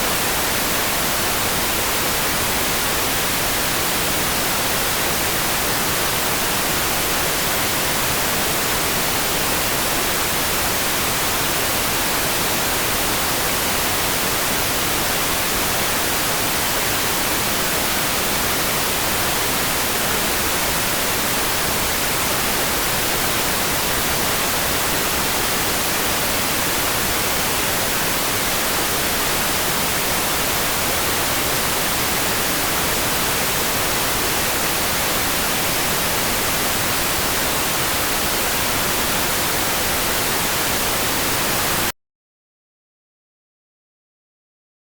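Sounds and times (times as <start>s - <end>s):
steady white noise hiss: 0.0s - 41.9s.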